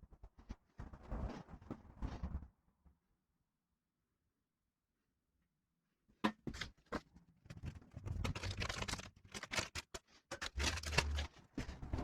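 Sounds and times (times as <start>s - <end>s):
parts and tools clicking: 9.3s - 11.7s.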